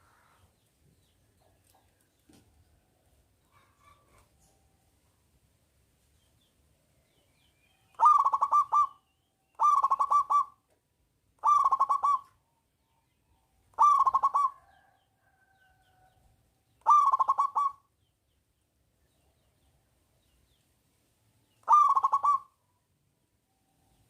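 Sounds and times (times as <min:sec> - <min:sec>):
dove cooing: 0:08.0 - 0:09.0, 0:09.6 - 0:10.6, 0:11.4 - 0:12.4, 0:13.7 - 0:15.0, 0:16.8 - 0:17.8, 0:21.6 - 0:22.6.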